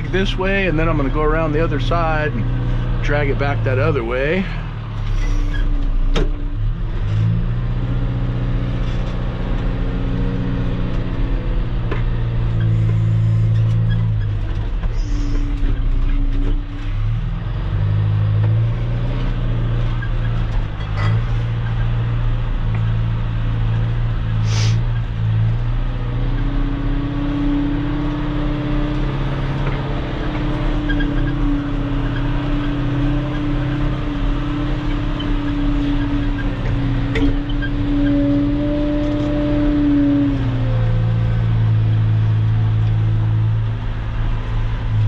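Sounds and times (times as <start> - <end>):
brief high squeal: 14.9 - 15.5.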